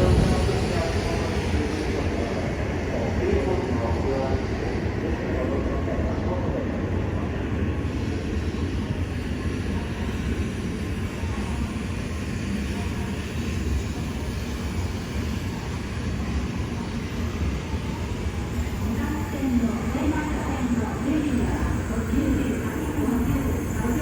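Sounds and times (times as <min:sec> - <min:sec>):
bullet train running: 0:00.0 - 0:24.0.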